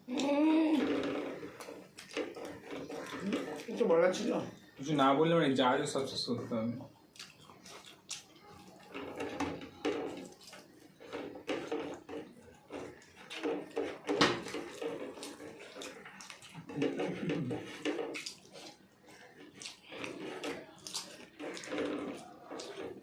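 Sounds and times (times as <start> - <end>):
people chewing with mouth smacks: 0.0 - 4.9, 6.0 - 23.0.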